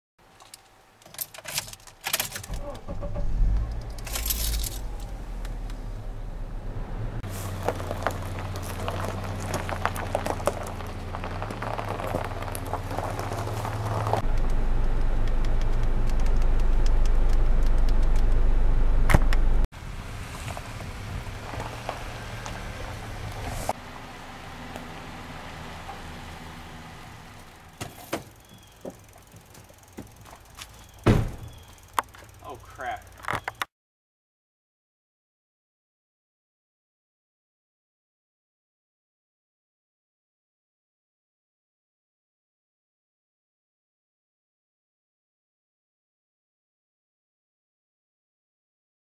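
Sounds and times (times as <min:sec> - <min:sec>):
car engine cranking and running: 0:01.2 - 0:33.6
keys jangling: 0:04.0 - 0:04.9.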